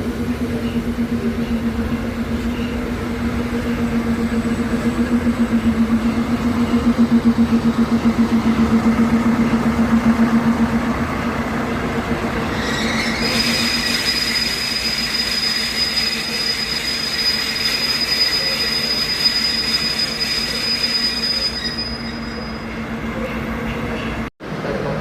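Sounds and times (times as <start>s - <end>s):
diesel locomotive running: 0.0s - 25.0s
wheels squealing on track: 12.4s - 22.8s.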